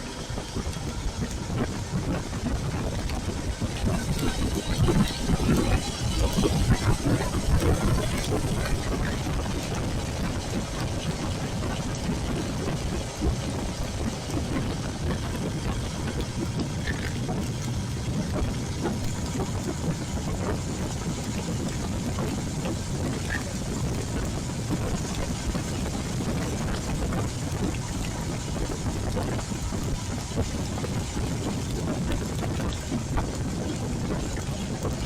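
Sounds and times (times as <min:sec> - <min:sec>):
heavy rain: 0:00.0 - 0:35.0
motorcycle engine running: 0:00.0 - 0:35.0
wet road noise: 0:00.0 - 0:35.0.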